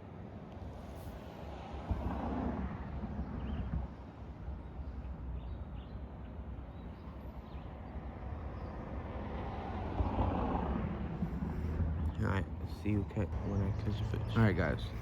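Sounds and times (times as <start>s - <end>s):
low outdoor rumble: 10.7s - 15.0s.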